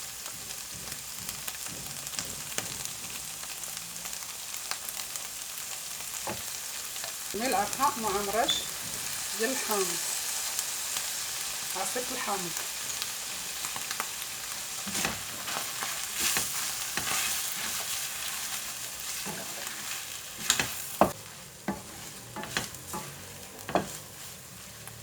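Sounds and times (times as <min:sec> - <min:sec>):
food sizzling in a frying pan: 0:00.0 - 0:25.0
utensil scraping a pan: 0:14.8 - 0:25.0.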